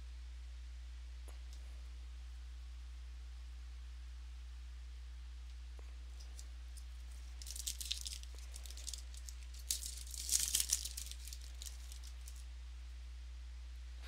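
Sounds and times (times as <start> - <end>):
card pack crinkling: 6.2 - 12.4.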